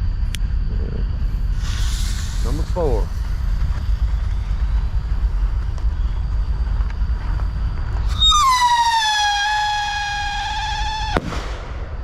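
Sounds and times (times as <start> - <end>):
steady low rumble: 0.0 - 12.0
firework rocket whistling howl: 7.9 - 12.0.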